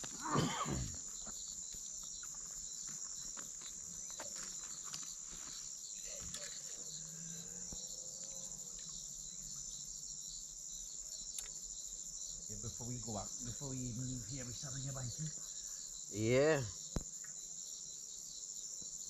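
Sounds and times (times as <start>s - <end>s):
insects chirring: 0.0s - 19.0s
faint clicks: 11.3s - 11.6s.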